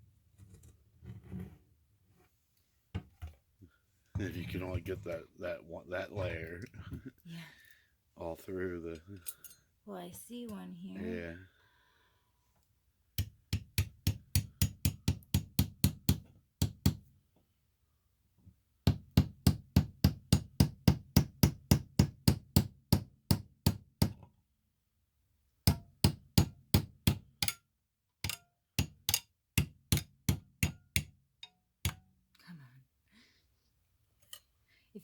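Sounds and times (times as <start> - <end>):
hammer striking rock: 13.2 - 17.0.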